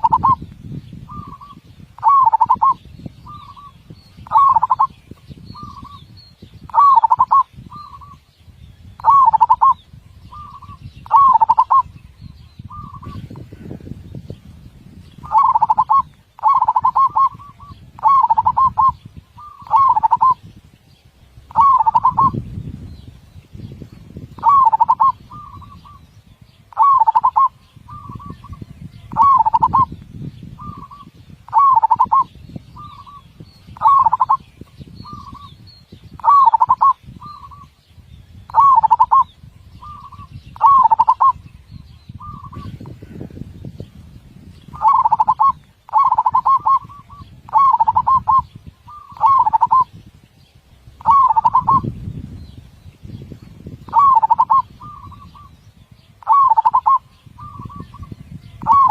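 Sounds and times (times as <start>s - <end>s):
dove cooing: 0.0s - 0.4s, 1.1s - 6.1s, 6.7s - 8.2s, 9.0s - 12.0s, 12.7s - 13.4s, 15.2s - 20.4s, 21.5s - 22.4s, 24.4s - 26.0s, 26.7s - 29.9s, 30.6s - 33.2s, 33.8s - 34.4s, 36.2s - 37.7s, 38.5s - 41.4s, 44.7s - 49.9s, 51.0s - 51.9s, 53.9s - 55.6s, 56.2s - 58.9s.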